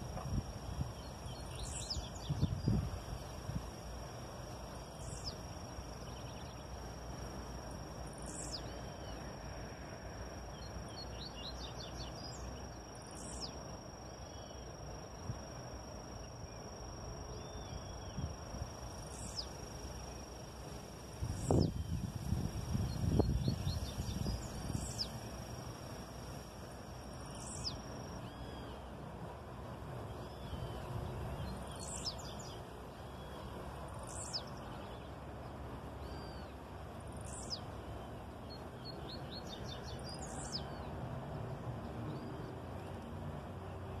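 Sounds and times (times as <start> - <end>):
low background noise: 0.0 - 44.0
small birds chirping: 0.1 - 3.9, 4.8 - 7.3, 8.2 - 9.4, 10.5 - 26.0, 27.2 - 28.9, 30.1 - 35.2, 36.0 - 40.9.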